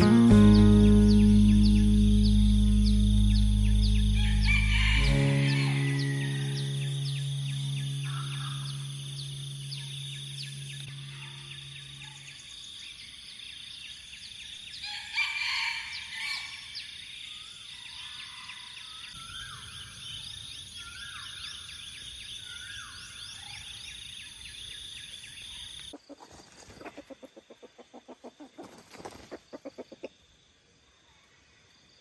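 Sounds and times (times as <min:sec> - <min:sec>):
background music: 0:00.0 - 0:12.2
insects droning: 0:00.0 - 0:32.0
roosters crowing: 0:03.3 - 0:08.9, 0:14.8 - 0:16.8.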